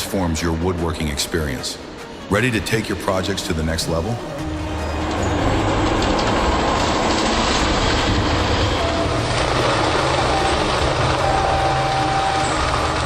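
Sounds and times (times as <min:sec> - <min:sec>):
heavy machine engine running: 0:04.2 - 0:13.0.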